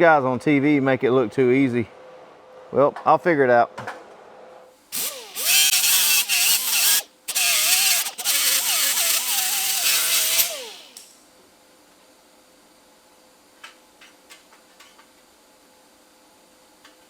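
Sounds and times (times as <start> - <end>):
welding arc hissing: 5.0 - 11.2.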